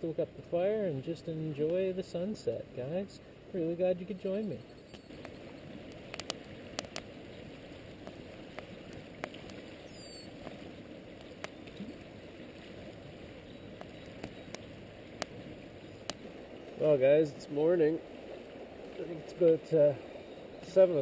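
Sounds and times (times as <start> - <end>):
river water running: 0.0 - 21.0.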